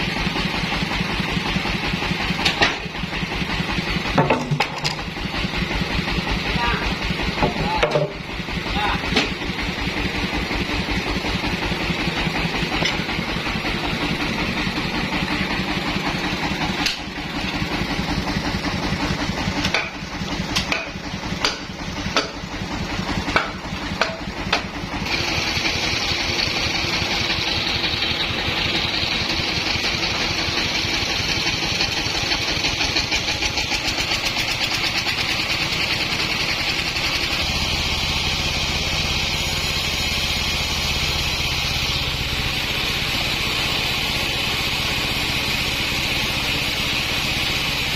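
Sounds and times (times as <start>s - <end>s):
sawmill engine running: 0.0s - 47.9s
sharp knocks and clatters: 2.2s - 3.0s, 4.0s - 5.2s, 7.3s - 8.3s, 9.1s - 9.5s, 12.6s - 13.6s, 19.3s - 24.8s.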